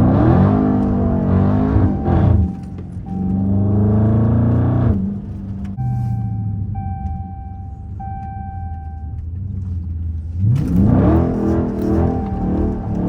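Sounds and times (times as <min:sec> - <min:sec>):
car engine rumbling and revving: 0:00.0 - 0:13.0
steady high tone: 0:00.4 - 0:04.5, 0:11.7 - 0:13.0.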